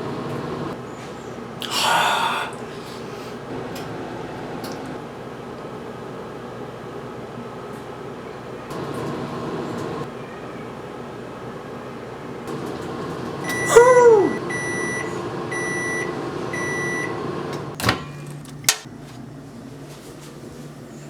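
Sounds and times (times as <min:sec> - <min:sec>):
microwave oven humming: 0:00.0 - 0:21.0
microwave beeps: 0:12.5 - 0:18.3.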